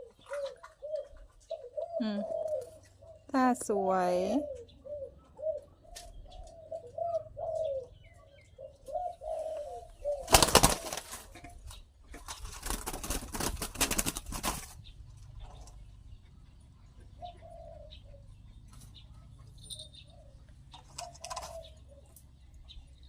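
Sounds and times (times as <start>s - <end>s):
dove cooing: 0.0s - 23.0s
rapid wing flapping: 10.2s - 11.4s, 12.2s - 14.8s.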